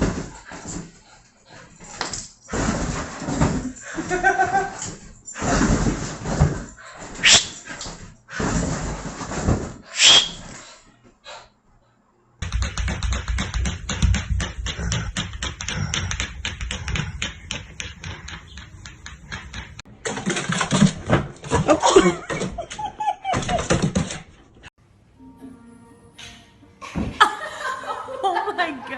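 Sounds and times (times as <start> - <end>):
rapid even clicks: 12.4 - 19.8.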